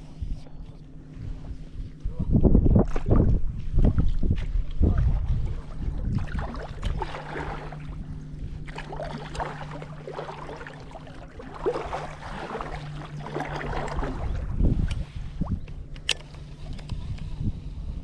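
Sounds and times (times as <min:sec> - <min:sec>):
water splashing around boat: 0:02.7 - 0:17.4
motor humming: 0:06.2 - 0:18.0.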